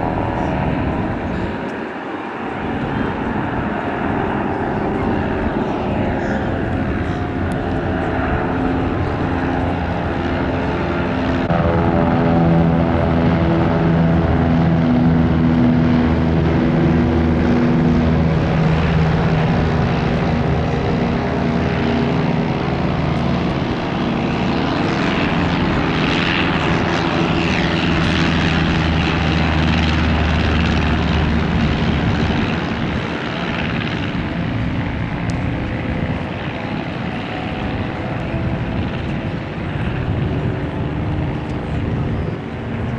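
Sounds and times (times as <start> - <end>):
propeller aircraft engine: 0.0 - 42.9.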